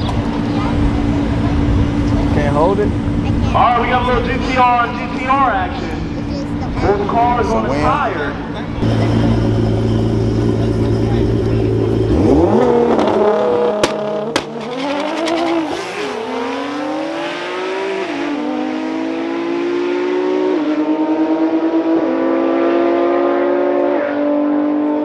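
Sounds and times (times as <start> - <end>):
drag car engines at full throttle: 0.0 - 25.0
sharp cracks: 13.8 - 15.4.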